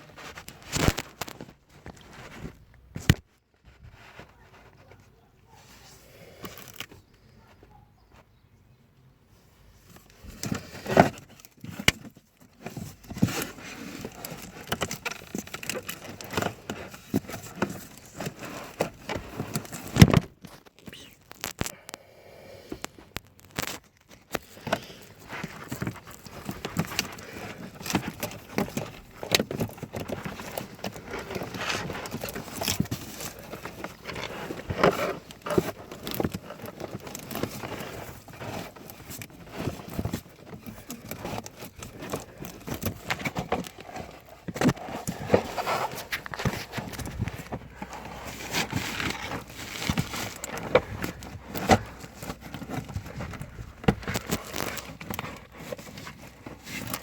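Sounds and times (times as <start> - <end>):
plastic parts clicking: 22.8 - 57.0.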